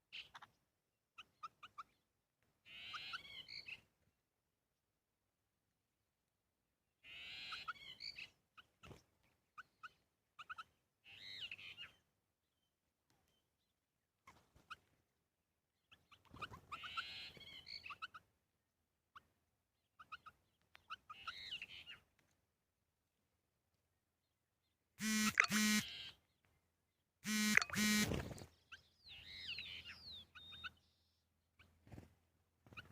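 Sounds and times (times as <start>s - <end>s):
bird warbling calls: 9.6s - 12.0s, 20.0s - 22.0s, 27.3s - 31.8s
sharp bird chirps: 27.2s - 31.8s.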